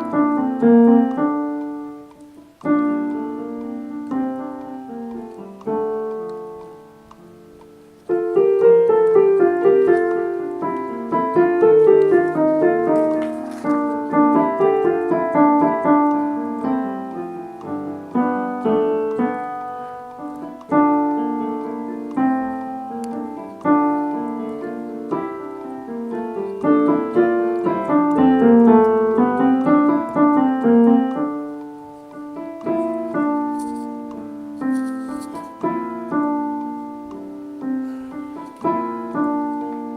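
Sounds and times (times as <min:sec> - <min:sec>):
piano chords and notes: 0:00.0 - 0:39.9.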